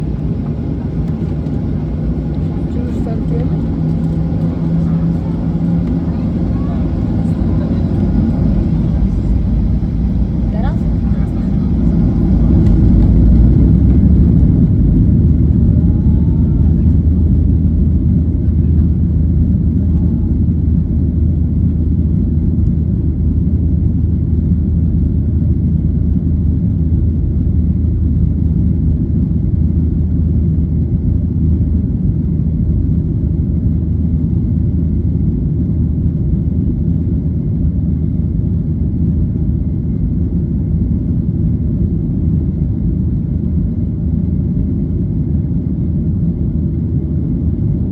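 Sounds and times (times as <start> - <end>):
jet engine rumble inside cabin: 0.0 - 47.9.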